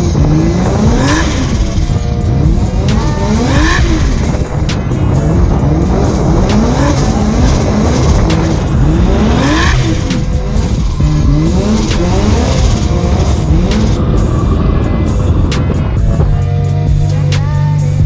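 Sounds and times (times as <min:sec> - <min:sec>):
car engine revving hard: 0:00.0 - 0:18.0
tyres squealing and skidding: 0:00.0 - 0:18.0.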